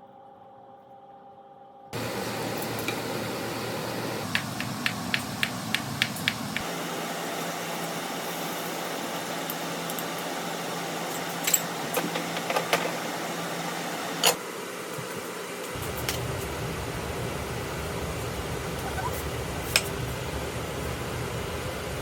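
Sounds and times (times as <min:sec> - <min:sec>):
knocks and clicks of food preparation: 0:04.2 - 0:06.7, 0:11.9 - 0:13.0.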